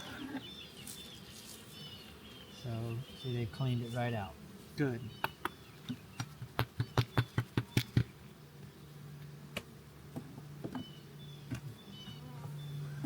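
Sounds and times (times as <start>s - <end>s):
honey bees humming: 0.0s - 13.0s
sharp clicks of wooden hive parts: 5.2s - 8.2s, 9.2s - 12.2s.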